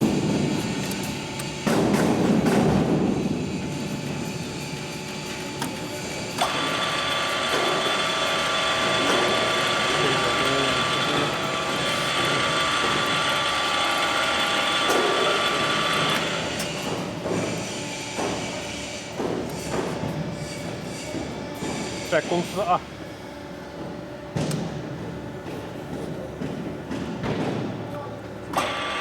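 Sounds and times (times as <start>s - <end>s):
milling machine gear noise: 5.0s - 18.0s.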